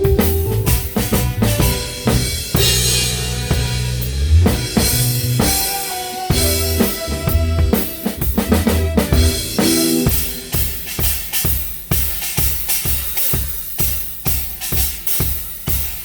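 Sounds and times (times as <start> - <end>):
bass and guitar notes: 0.0 - 10.5
drum kit beat: 0.0 - 16.0.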